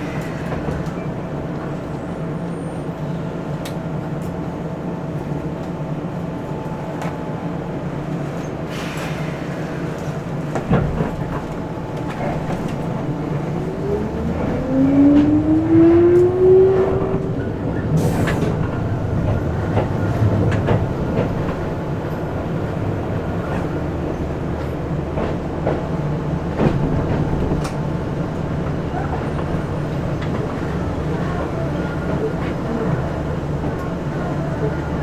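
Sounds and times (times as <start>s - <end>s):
electric train rumble: 0.0s - 35.0s
rising whine: 13.1s - 18.0s.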